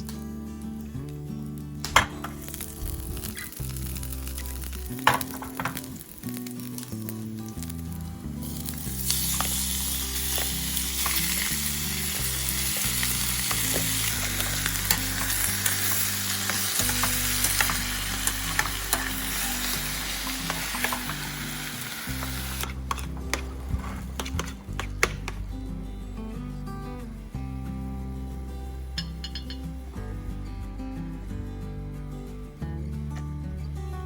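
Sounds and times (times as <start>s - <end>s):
background music: 0.0s - 34.0s
food sizzling in a hot pan: 2.3s - 23.4s
stirring taps and scrapes: 22.1s - 25.4s.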